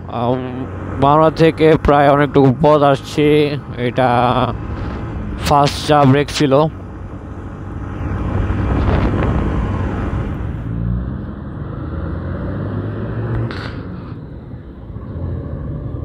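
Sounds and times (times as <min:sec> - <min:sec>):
wind rush on microphone: 0:08.0 - 0:10.7.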